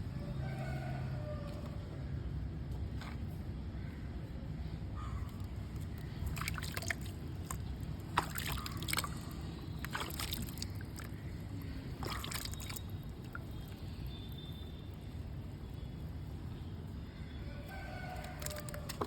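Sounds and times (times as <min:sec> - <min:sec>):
water sloshing: 0:05.4 - 0:14.3, 0:18.1 - 0:19.0
wet mud crunching: 0:05.6 - 0:13.8, 0:18.1 - 0:19.0.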